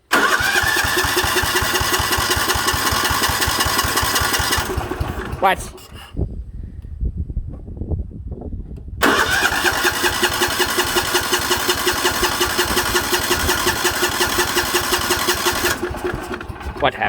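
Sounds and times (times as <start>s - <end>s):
lawn tractor engine cranking: 0.0s - 6.1s, 9.0s - 17.0s.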